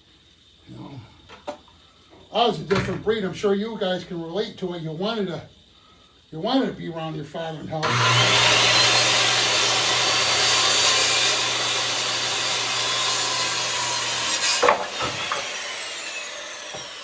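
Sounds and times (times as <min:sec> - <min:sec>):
power saw cutting wood: 0:07.8 - 0:17.0.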